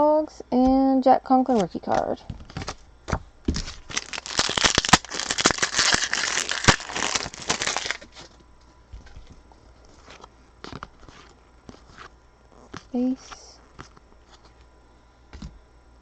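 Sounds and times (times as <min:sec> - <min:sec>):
foil wrapper tearing and crinkling: 0:02.4 - 0:02.8, 0:03.5 - 0:08.3.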